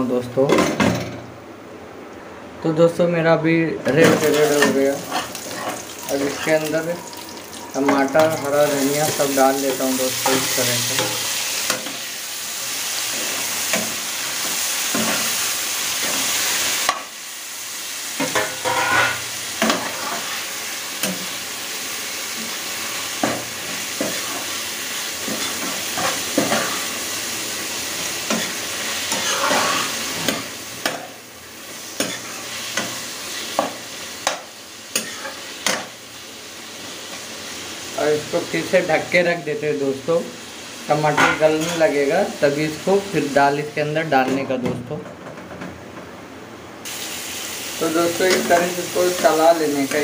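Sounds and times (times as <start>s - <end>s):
food sizzling in hot oil: 4.0s - 43.9s, 46.8s - 50.0s
spoon knocking and scraping pan: 18.2s - 20.4s, 23.2s - 24.5s, 25.2s - 26.8s, 32.0s - 35.9s.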